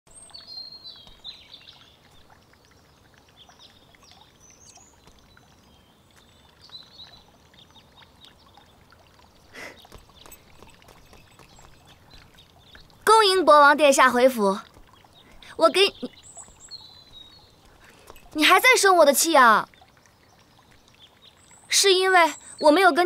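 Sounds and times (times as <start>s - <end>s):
faint birds chirping: 0.1s - 23.0s.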